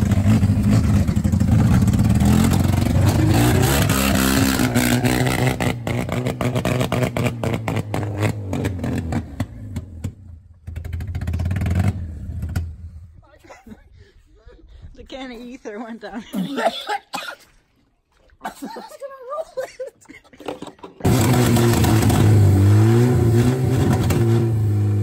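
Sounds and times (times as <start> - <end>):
car engine revving and sputtering: 0.0 - 12.8, 21.0 - 25.0.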